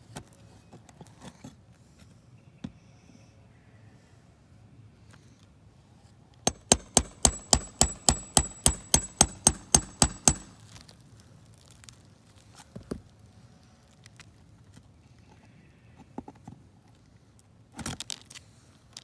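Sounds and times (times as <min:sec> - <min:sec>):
sharp knocks: 0:06.5 - 0:10.6.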